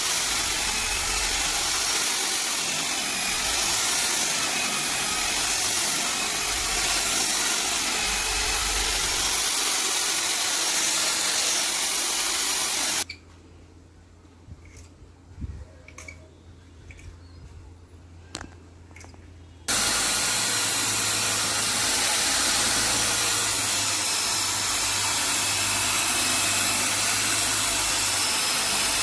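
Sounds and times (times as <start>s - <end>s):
power tool rushing hiss: 0.0s - 13.0s, 19.7s - 29.0s
thin high whine: 19.7s - 29.0s.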